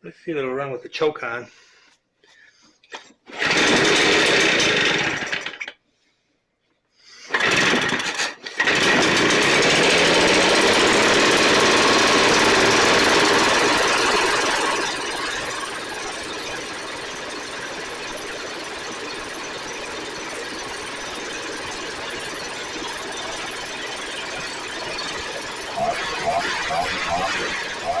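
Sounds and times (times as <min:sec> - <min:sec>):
two-stroke blower engine: 0:03.3 - 0:05.7, 0:07.3 - 0:28.0.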